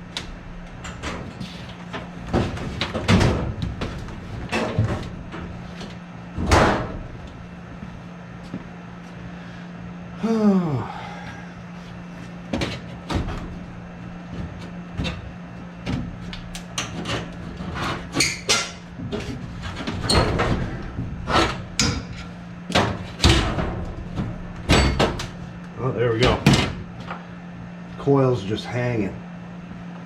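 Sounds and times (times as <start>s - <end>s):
steady low hum: 0.0s - 30.0s
sheet metal clanking and rattling: 0.2s - 5.8s, 16.8s - 25.4s.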